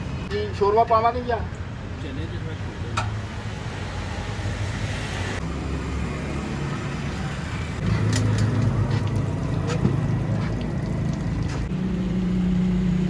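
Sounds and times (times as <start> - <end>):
vehicle engine running: 2.8 - 13.0.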